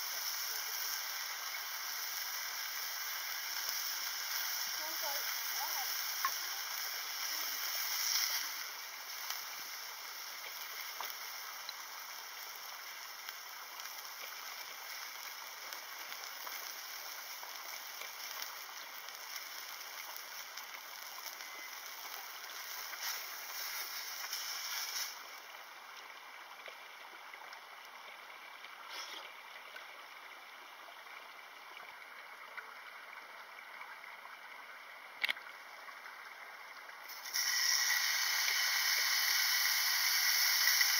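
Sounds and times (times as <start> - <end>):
meat sizzling in a frying pan: 0.0 - 25.5, 37.1 - 40.9.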